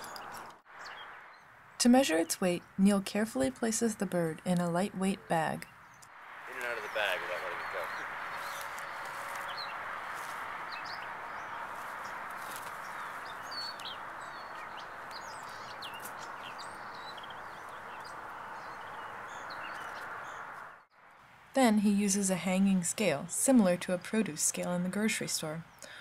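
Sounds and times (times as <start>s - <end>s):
birds chirping: 0.0s - 26.0s
steady rushing background noise: 6.1s - 20.8s.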